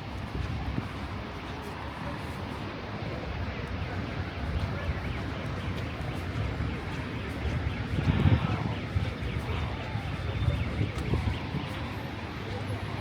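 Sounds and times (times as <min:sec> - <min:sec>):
low rumble of traffic: 0:00.0 - 0:13.0.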